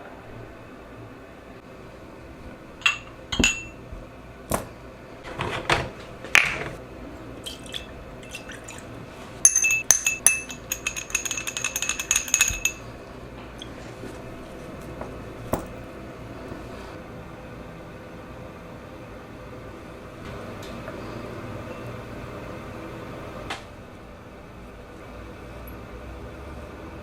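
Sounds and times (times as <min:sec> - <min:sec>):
small parts clinking in a container: 0:09.5 - 0:12.8.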